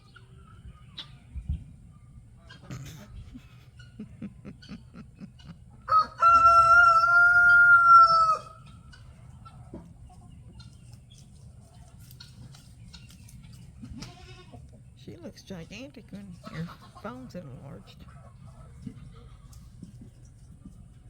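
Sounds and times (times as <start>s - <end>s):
rooster crowing: 5.8s - 8.7s.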